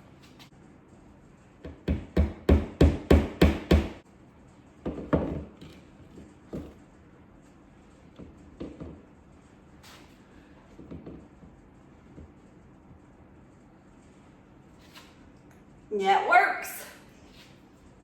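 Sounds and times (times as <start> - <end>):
hammer striking nail: 1.6 - 4.0.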